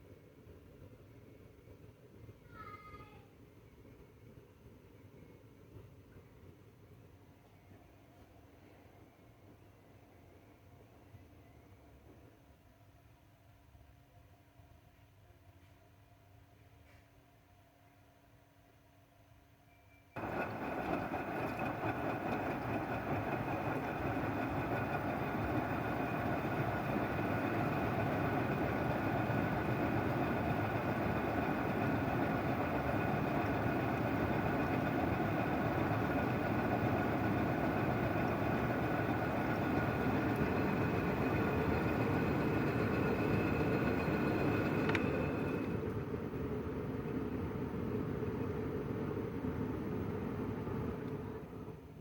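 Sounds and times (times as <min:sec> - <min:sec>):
washing machine running: 0:20.2 - 0:52.0.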